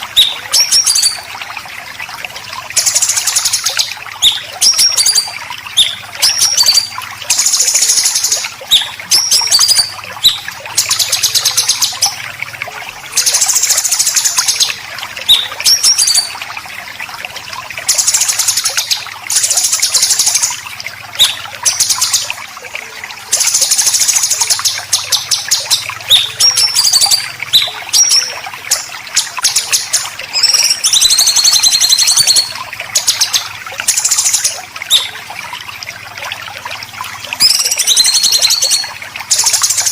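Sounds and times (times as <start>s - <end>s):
high whistled bird notes: 2.8s - 10.4s, 15.3s - 16.3s, 23.4s - 35.2s, 37.4s - 39.9s.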